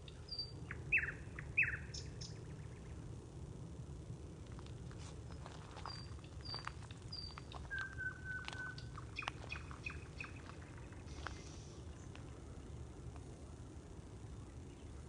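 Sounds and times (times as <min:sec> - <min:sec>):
low background hum: 0:00.0 - 0:15.0
birds whistling: 0:00.1 - 0:02.5, 0:05.3 - 0:11.8
short clicking calls: 0:05.9 - 0:10.4.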